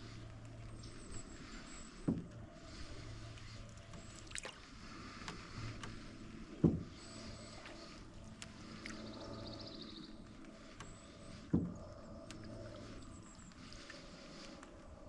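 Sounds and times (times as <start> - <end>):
paddle clicks: 0.2 - 14.8
dull knocks on canoe: 6.6 - 7.0, 11.5 - 11.8.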